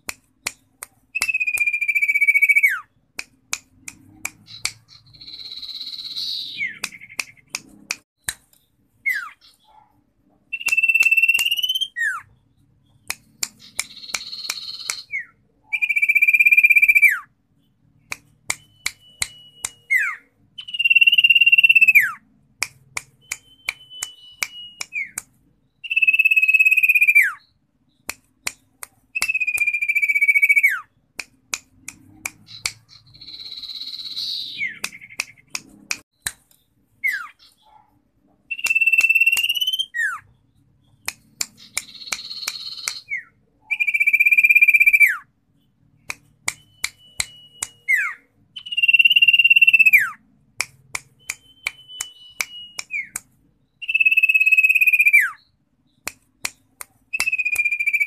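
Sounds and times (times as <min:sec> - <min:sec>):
bird whistling song: 0:00.4 - 0:03.1, 0:04.4 - 0:07.6, 0:08.9 - 0:09.8, 0:10.5 - 0:17.8, 0:18.5 - 0:22.3, 0:23.2 - 0:31.2, 0:32.4 - 0:35.6, 0:37.0 - 0:37.8, 0:38.5 - 0:45.8, 0:46.5 - 0:50.3, 0:51.2 - 0:58.0
sharp clicks: 0:03.2 - 0:05.6, 0:06.8 - 0:08.7, 0:10.6 - 0:11.8, 0:13.0 - 0:15.1, 0:18.1 - 0:19.9, 0:31.2 - 0:33.7, 0:34.7 - 0:36.6, 0:40.9 - 0:43.1, 0:46.0 - 0:47.9, 0:50.6 - 0:54.4, 0:56.0 - 0:58.0.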